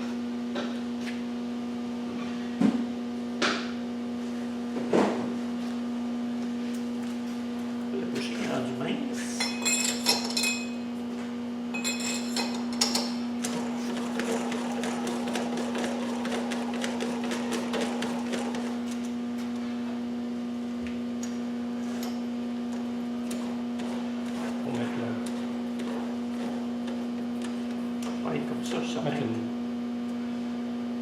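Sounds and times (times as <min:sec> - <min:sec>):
machine tool motor humming: 0:22.7 - 0:28.2.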